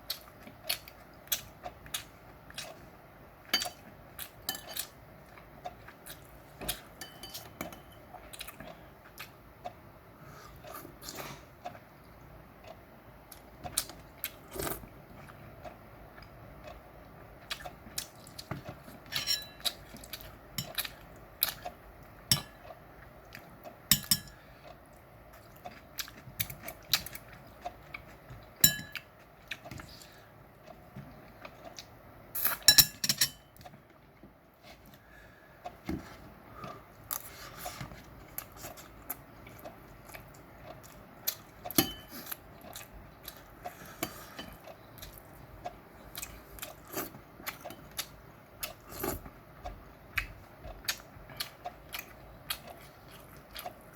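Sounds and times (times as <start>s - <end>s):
chewing: 3.6s - 9.8s, 10.4s - 23.9s, 24.6s - 32.6s, 34.6s - 53.9s
utensils clinking against dishes: 7.0s - 8.0s, 19.1s - 19.8s, 28.6s - 29.0s, 32.5s - 33.6s.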